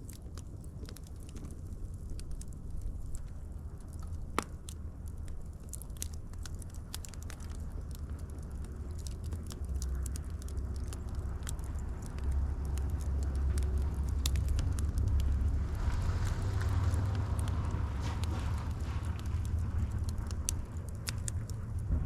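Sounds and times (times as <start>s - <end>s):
fire pops and snaps: 0.0s - 22.0s
wood fire crackling: 0.0s - 22.0s
low rumble: 6.6s - 22.0s.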